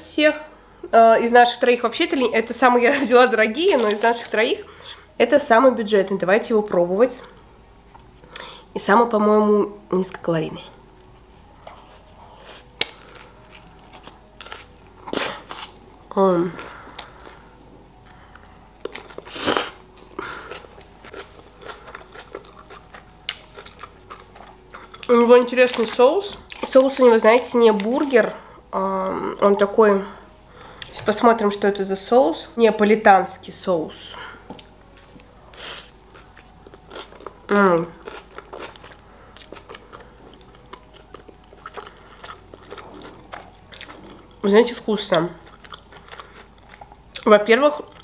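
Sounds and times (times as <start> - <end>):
person chewing food: 11.0 - 15.8, 16.6 - 25.1, 34.5 - 44.4, 45.1 - 47.2.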